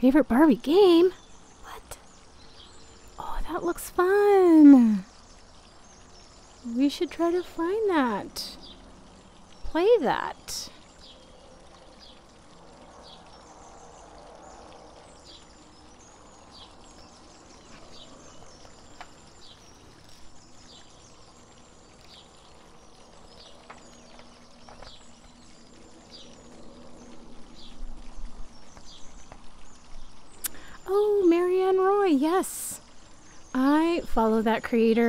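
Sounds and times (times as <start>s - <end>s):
water fountain trickling: 0.0s - 35.0s
bird chirping: 0.5s - 35.0s.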